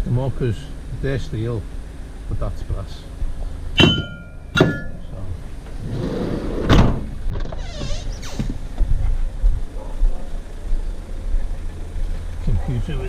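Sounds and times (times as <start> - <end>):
metal clinking: 3.8 - 5.2
metal knocks: 3.8 - 5.2.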